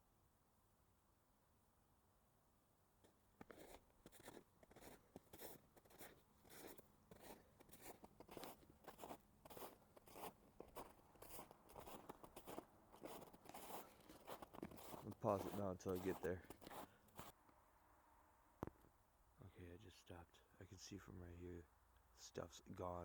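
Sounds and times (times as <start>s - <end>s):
footsteps crunching on snow: 3.0s - 17.3s.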